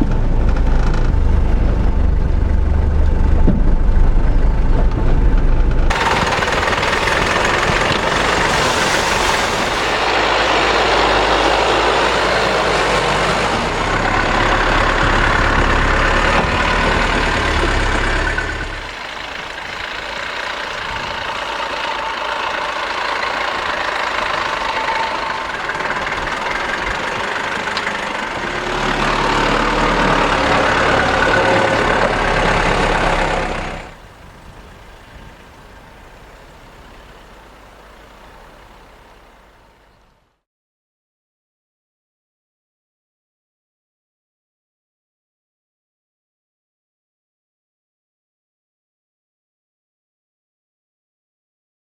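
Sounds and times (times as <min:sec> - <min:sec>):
tyres on rough ground: 0:00.0 - 0:40.2
vehicle engine: 0:00.0 - 0:40.3.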